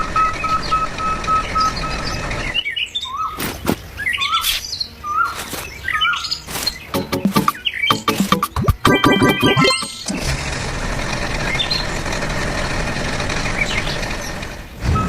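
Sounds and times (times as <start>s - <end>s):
songbirds chirping: 1.4s - 7.9s
rapid regular beeping: 6.9s - 10.1s.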